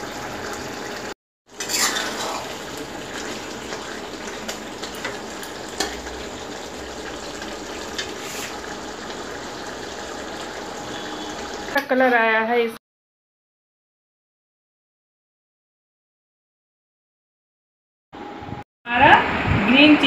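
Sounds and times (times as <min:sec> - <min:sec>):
chicken sizzling in a pan: 0:00.0 - 0:11.9.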